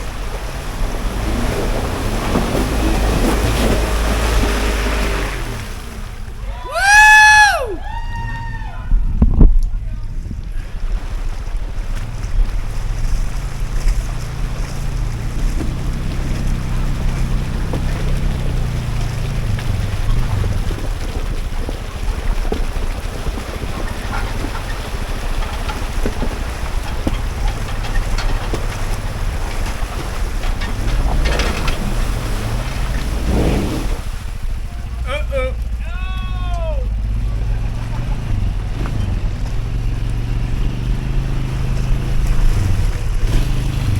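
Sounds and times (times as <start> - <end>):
off-road engine revving: 0.0 - 43.9
wind buffeting microphone: 7.7 - 43.9
clicks and knocks: 24.3 - 33.1.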